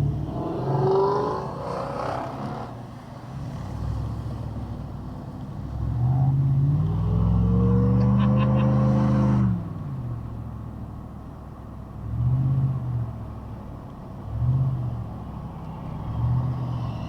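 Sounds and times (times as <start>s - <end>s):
car engine revving: 0.0s - 10.7s.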